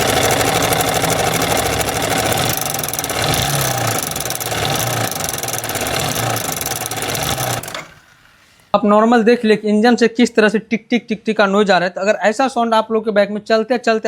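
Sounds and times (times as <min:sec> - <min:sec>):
motorcycle engine ticking clatter: 0:00.0 - 0:08.2.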